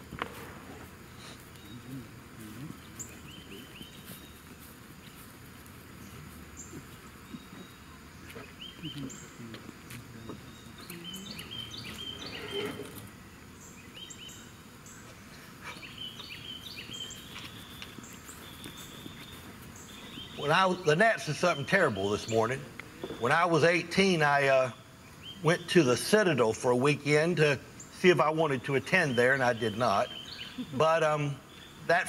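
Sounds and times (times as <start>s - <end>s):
small birds chirping: 0.8s - 32.0s
faint talking: 1.6s - 3.8s, 8.7s - 11.5s.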